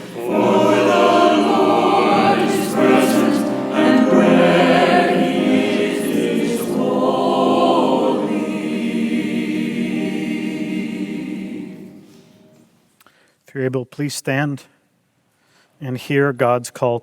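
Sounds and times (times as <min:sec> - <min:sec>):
church choir singing: 0:00.0 - 0:12.7.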